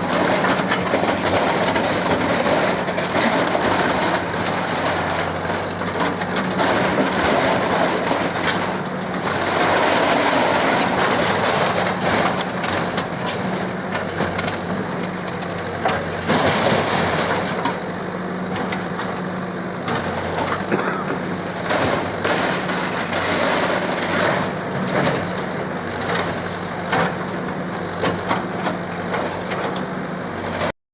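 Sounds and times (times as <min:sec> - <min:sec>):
bulldozer engine running: 0:00.0 - 0:30.7
breaking structure knocks and cracks: 0:15.8 - 0:17.8.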